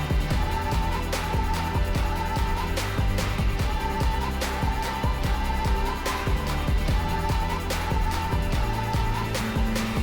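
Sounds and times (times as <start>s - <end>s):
electronic beat music: 0.0s - 10.0s.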